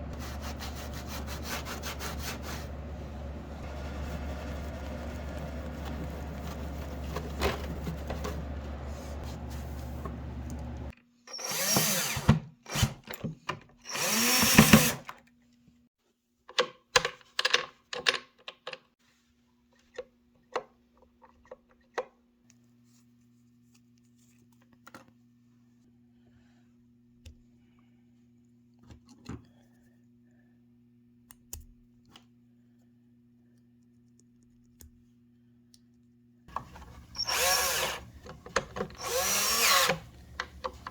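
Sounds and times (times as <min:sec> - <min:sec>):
cordless drill running: 0:10.1 - 0:12.9, 0:13.9 - 0:15.0, 0:36.5 - 0:40.9.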